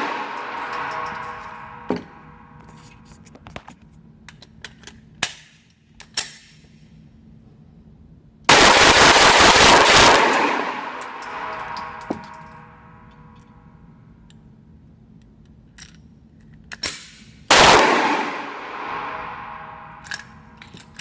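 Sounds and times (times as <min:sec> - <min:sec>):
rapid gunshots: 0:08.5 - 0:11.7, 0:17.5 - 0:19.8.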